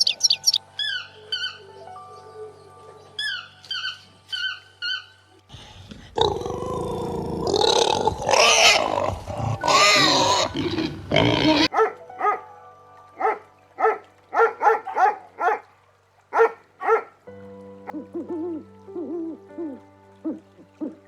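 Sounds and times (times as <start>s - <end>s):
rough animal calling: 0.0s - 12.4s.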